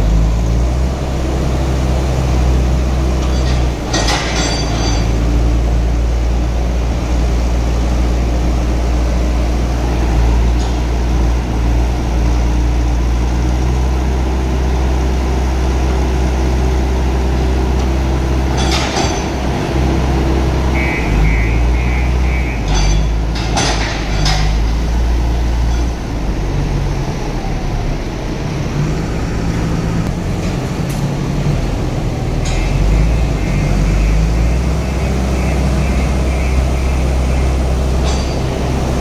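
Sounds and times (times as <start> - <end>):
diesel engine running: 0.0 - 39.0
metallic clinks: 3.2 - 5.3.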